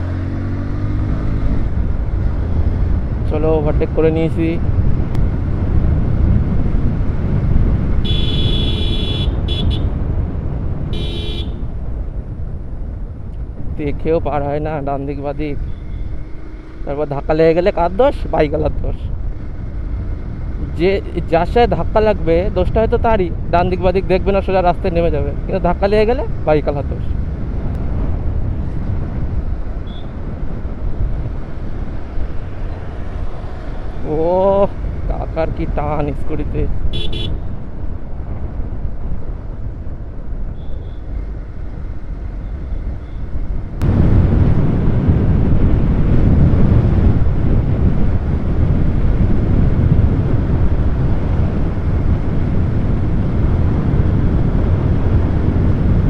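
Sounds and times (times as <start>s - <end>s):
wind and motorcycle road rumble: 0.0s - 56.0s
vehicle horn honking: 8.0s - 9.9s, 10.9s - 11.6s, 29.8s - 30.2s, 36.9s - 37.4s.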